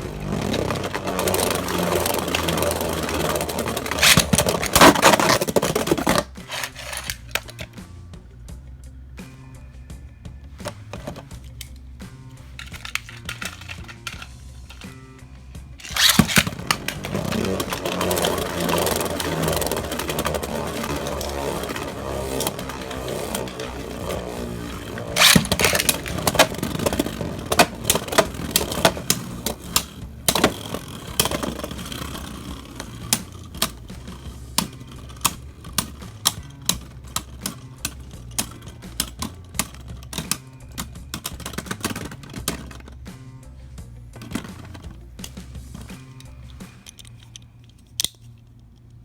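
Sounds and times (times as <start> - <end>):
spinning tops clacking: 0.0 - 7.8, 12.4 - 15.0, 15.8 - 43.0
spinning tops whirring: 0.0 - 7.8, 15.8 - 43.1.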